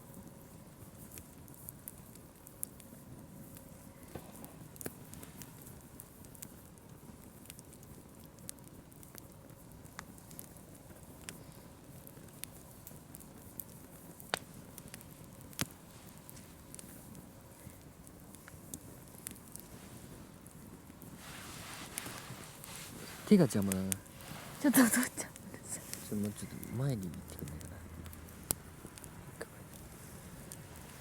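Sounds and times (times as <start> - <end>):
campfire crackling and popping: 0.0 - 31.0
faint low rumble: 14.1 - 31.0.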